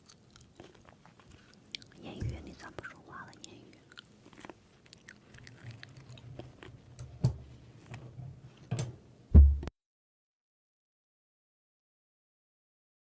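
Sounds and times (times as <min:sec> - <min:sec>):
person chewing food: 0:00.0 - 0:08.0.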